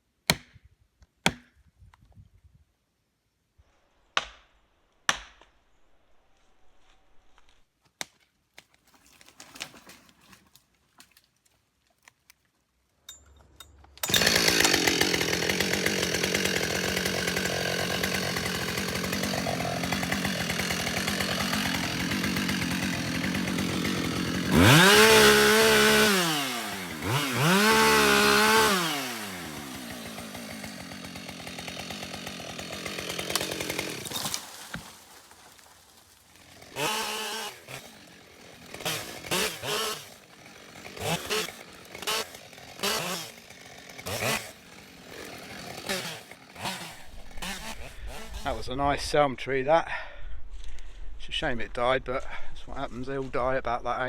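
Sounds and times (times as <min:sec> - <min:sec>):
chainsaw cutting wood: 0:13.7 - 0:48.9.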